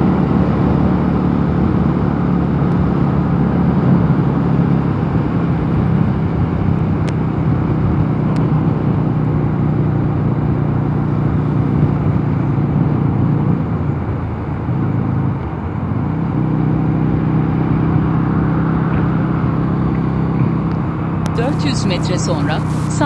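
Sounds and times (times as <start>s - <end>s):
motorcycle engine running: 0.0s - 23.0s
wind rush on microphone: 0.0s - 23.0s.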